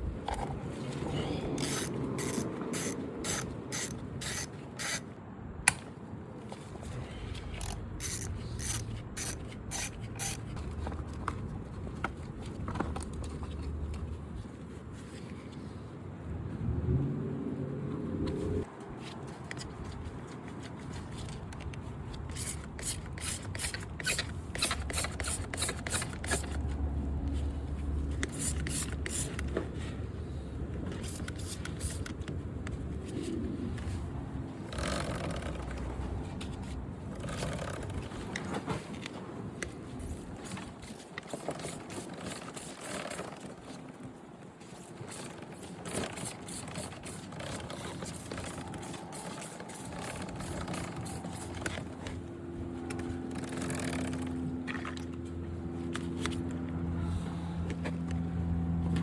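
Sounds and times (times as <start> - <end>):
steady background noise: 0.0 - 59.0
hand scrubbing motorcycle: 44.6 - 52.2.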